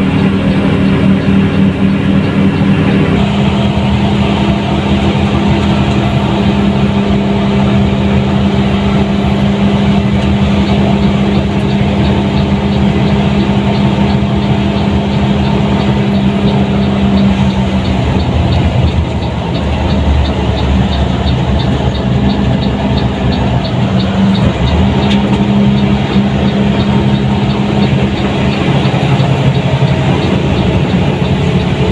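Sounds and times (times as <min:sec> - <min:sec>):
bus diesel engine drone: 0:00.0 - 0:31.9
light regular ticking: 0:00.0 - 0:31.9.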